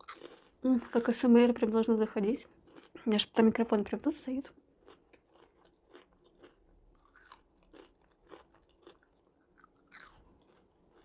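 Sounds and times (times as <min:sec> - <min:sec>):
crunchy chewing of fries: 0:00.0 - 0:01.2, 0:02.6 - 0:03.2, 0:04.6 - 0:11.0.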